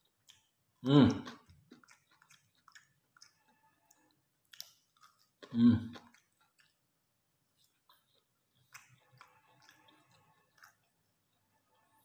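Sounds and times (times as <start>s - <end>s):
wet mouth clicks chewing: 0.0s - 6.9s, 7.5s - 11.1s
person humming: 0.8s - 1.4s, 5.5s - 6.0s.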